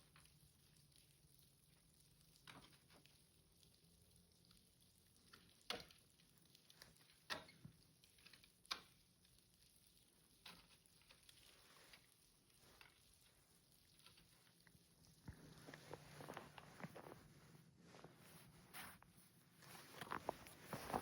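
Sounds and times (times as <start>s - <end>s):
faint sharp taps or crunches: 13.9s - 21.0s.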